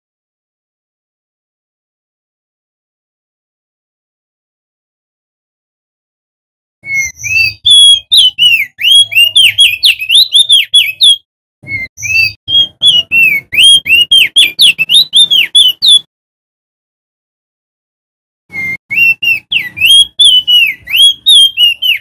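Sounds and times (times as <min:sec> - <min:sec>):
bird singing whistled phrases: 0:06.8 - 0:16.1, 0:18.5 - 0:22.0.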